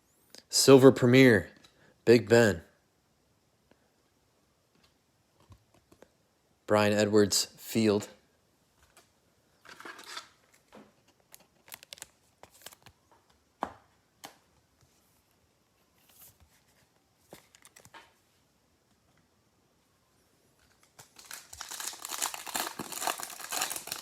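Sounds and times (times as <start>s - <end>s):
foil wrapper tearing and crinkling: 11.3s - 12.9s, 20.8s - 24.0s.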